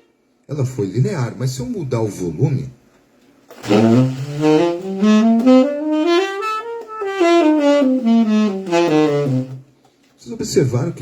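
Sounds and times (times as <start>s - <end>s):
saxophone playing a scale: 3.6s - 9.7s.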